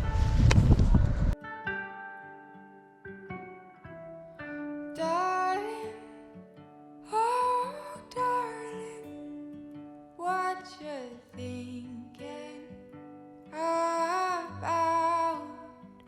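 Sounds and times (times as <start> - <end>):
acoustic guitar: 0.0 - 16.0
person singing: 5.0 - 6.3, 7.1 - 9.2, 10.2 - 12.8, 13.5 - 15.8.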